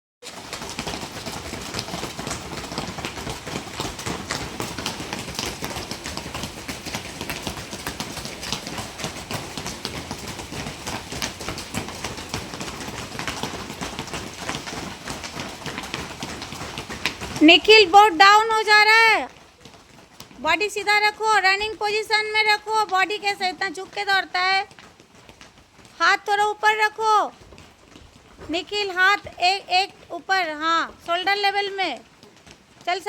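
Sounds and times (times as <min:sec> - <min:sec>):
running footfalls: 0:00.2 - 0:33.0.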